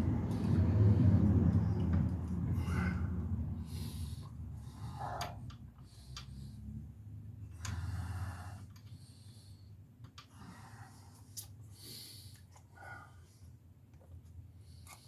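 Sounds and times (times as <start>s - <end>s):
person breathing heavily: 0.2s - 6.8s.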